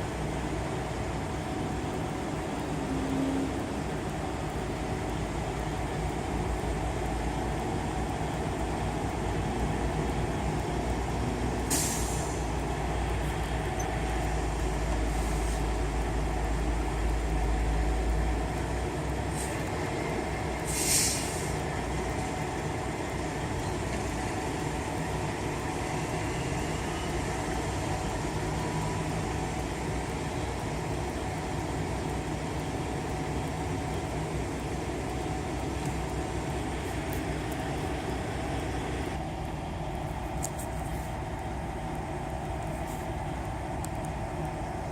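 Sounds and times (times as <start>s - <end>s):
diesel engines idling: 0.0s - 44.9s
air-brake hisses: 11.7s - 12.5s, 20.6s - 21.6s.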